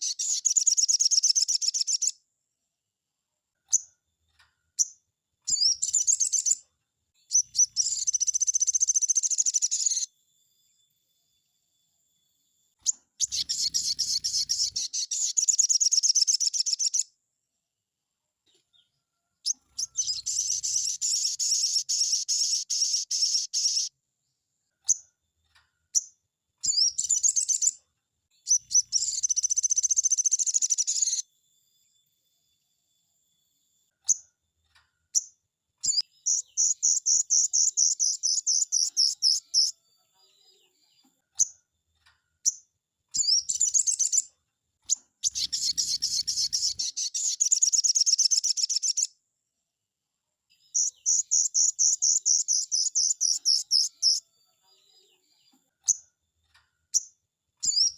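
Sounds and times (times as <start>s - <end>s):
bird twittering trills: 0.0s - 2.2s, 4.8s - 6.6s, 7.2s - 10.1s, 12.8s - 17.1s, 19.4s - 23.9s, 25.9s - 27.8s, 28.4s - 31.2s, 35.2s - 39.7s, 43.2s - 44.3s, 44.9s - 49.1s, 50.7s - 54.2s, 56.9s - 57.9s
bird single chips: 12.8s - 17.0s, 44.9s - 49.1s.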